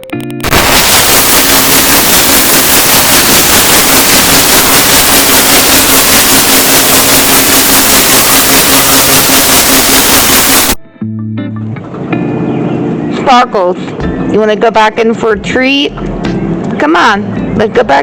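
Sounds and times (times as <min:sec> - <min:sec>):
heavy rain falling: 0:00.4 - 0:10.8.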